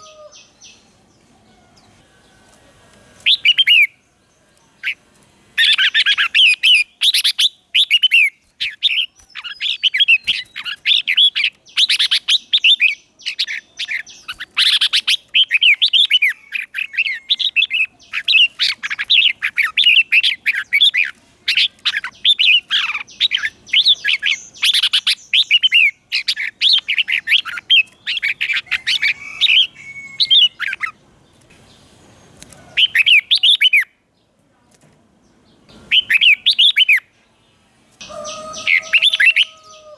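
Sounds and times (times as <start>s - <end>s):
bird warbling song: 0.0s - 34.0s, 35.3s - 37.1s, 38.0s - 39.9s.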